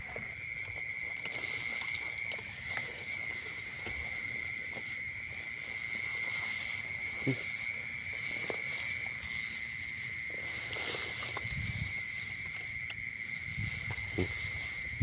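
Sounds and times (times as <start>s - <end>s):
high-pitched insect trill: 0.0s - 15.0s
light clicks and rustles: 0.2s - 4.9s.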